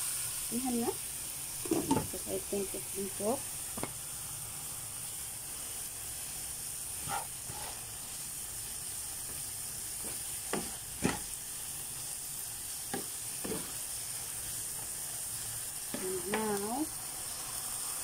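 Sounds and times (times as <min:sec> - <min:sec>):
chicken sizzling in a frying pan: 0:00.0 - 0:18.0
spatula scraping a pan: 0:06.9 - 0:08.2, 0:09.3 - 0:11.4, 0:12.9 - 0:13.9.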